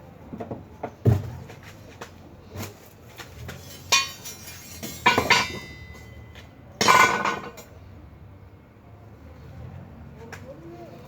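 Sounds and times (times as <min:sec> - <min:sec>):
metal clanking against metal: 0:03.5 - 0:07.6
metal rattling clatter: 0:03.6 - 0:06.1.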